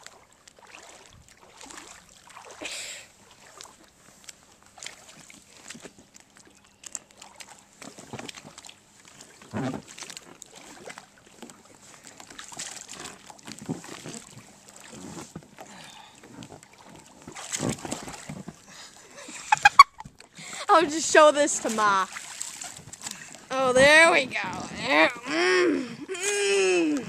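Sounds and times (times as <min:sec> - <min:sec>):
scuffing and knocks on kayak: 0:17.2 - 0:18.6.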